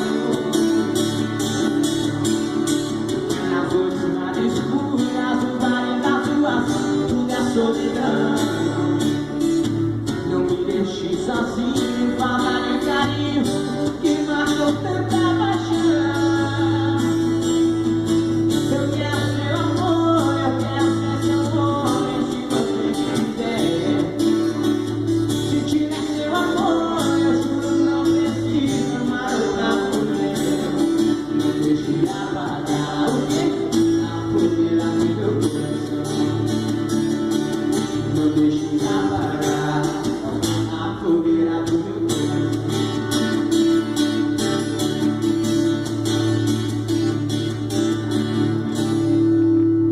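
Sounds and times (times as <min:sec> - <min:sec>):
male vocal duo singing live: 0:00.0 - 0:01.0, 0:03.2 - 0:09.5, 0:10.1 - 0:17.7, 0:18.5 - 0:36.4, 0:37.8 - 0:43.1.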